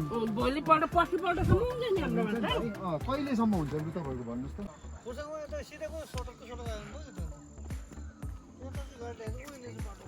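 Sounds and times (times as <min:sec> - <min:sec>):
low drum thumps: 0:00.0 - 0:03.8
bass line and melody: 0:00.0 - 0:04.7.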